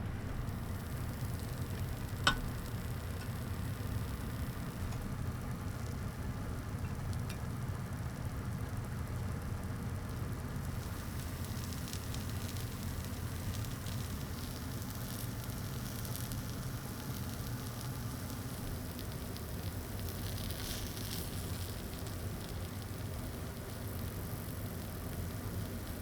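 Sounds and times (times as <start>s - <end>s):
steady low hum: 0.0s - 14.2s
charcoal crackling and sizzling: 0.0s - 26.0s.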